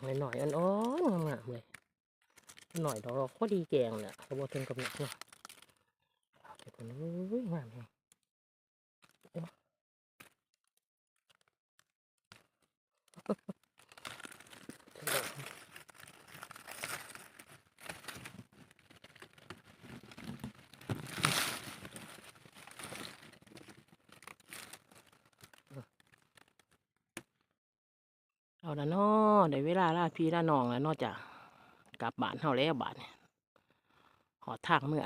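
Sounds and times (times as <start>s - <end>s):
rustling and crinkling: 0.0s - 6.8s, 10.2s - 26.8s
loud crunches: 13.5s - 26.7s.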